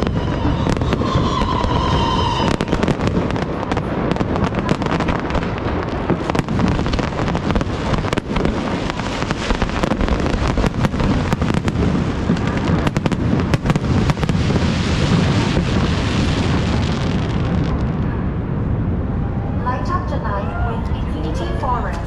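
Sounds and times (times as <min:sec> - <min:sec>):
firework crackling: 0:00.0 - 0:19.0
firework bangs: 0:00.0 - 0:20.0
low rumble: 0:10.2 - 0:22.0.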